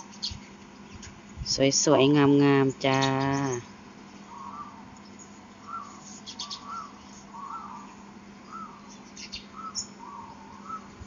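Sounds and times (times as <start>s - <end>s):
bird repeating rising note: 4.2s - 11.0s
high bird chirps: 4.3s - 11.0s.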